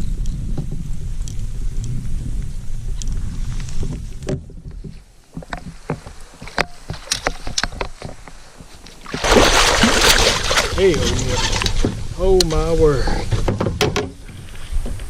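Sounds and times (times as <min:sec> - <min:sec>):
wind rumbling on microphone: 0:00.0 - 0:15.0
clicks and knocks from kayak tackle: 0:03.0 - 0:09.0.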